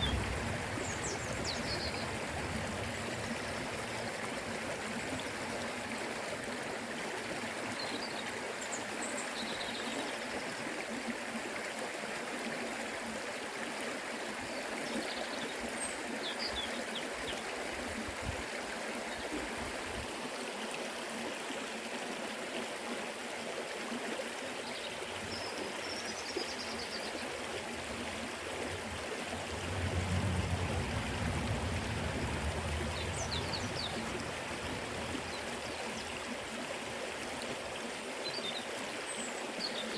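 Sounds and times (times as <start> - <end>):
river flowing over rocks: 0.0 - 39.9
low rumble: 28.6 - 35.6.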